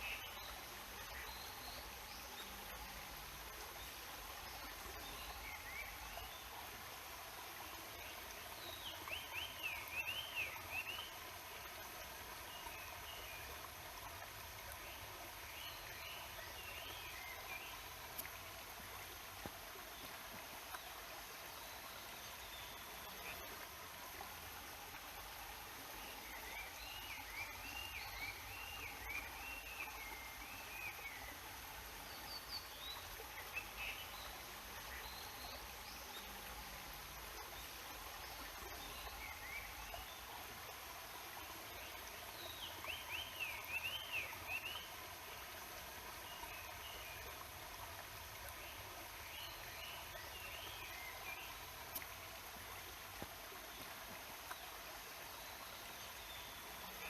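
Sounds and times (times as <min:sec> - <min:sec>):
waterfall and stream rushing: 0:00.0 - 0:57.0.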